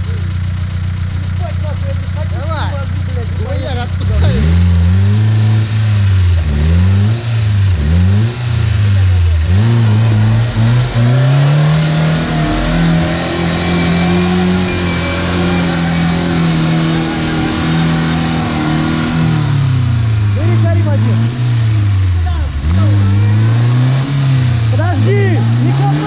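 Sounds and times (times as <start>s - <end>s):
off-road vehicle engine revving: 0.0s - 26.0s.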